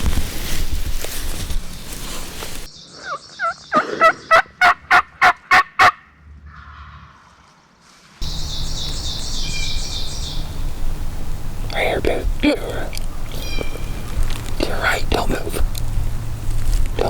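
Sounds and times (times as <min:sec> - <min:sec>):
turkey yelps: 0:02.9 - 0:06.9.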